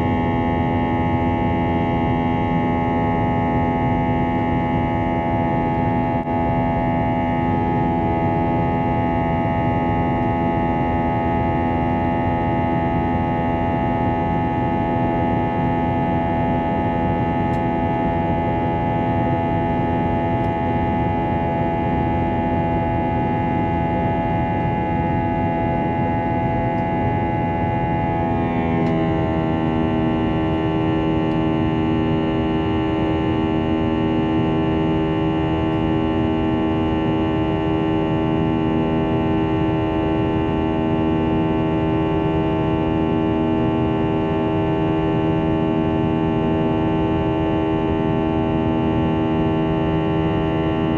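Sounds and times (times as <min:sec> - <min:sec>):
jet engines droning in cabin: 0:00.0 - 0:50.9.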